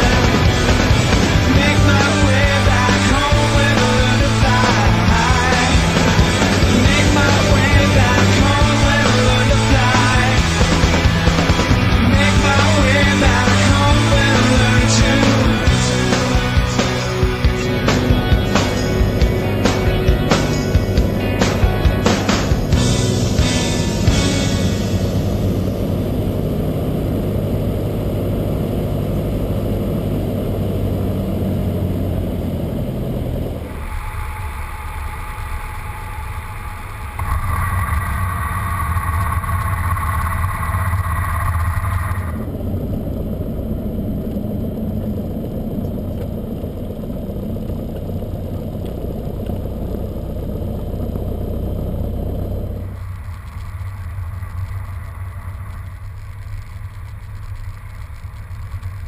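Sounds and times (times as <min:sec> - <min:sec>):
piston aircraft engine running: 0:00.0 - 0:59.0.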